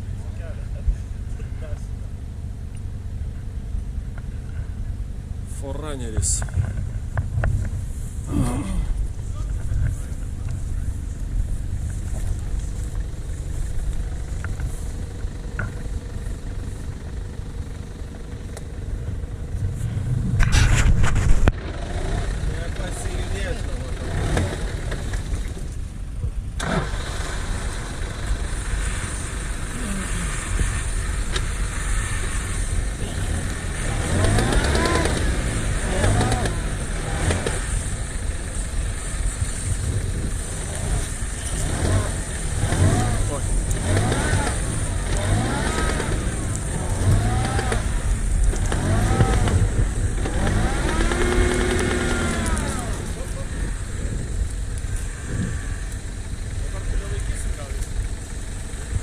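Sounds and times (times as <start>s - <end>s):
off-road vehicle engine running: 0.0s - 59.0s.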